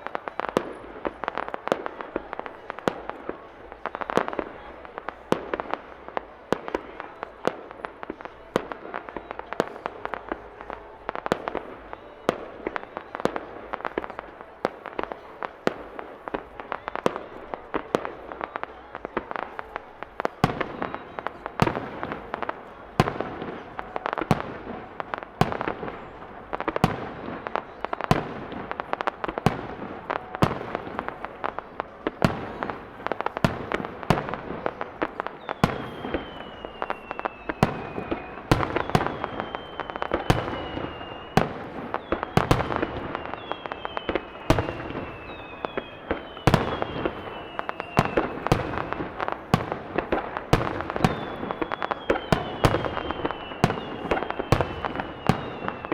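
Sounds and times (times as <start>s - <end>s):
firework crackle: 0.0s - 55.9s
firework whistles gliding down: 32.2s - 55.9s.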